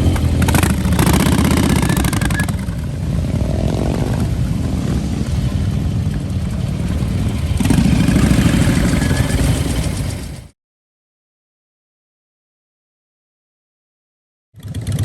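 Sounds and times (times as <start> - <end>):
vehicle engine rumbling: 0.0 - 10.5.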